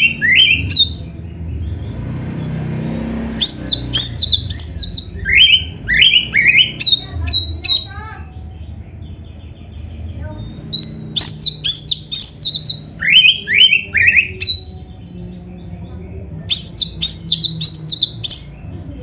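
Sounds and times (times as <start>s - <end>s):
magpie-robin singing: 0.0s - 19.0s.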